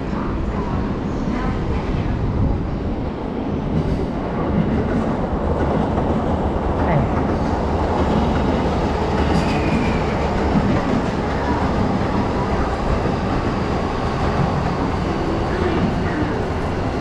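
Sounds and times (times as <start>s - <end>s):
train wheels on rails: 3.6s - 17.0s.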